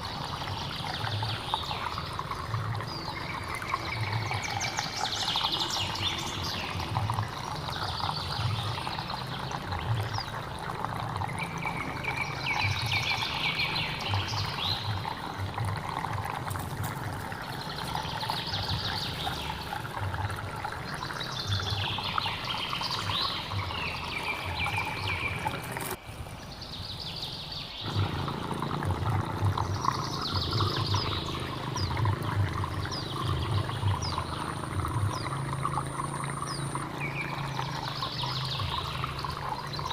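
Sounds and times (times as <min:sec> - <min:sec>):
bird singing: 0:00.0 - 0:10.4, 0:11.2 - 0:15.3, 0:17.4 - 0:19.9, 0:20.6 - 0:39.9
stream water running: 0:00.0 - 0:39.9.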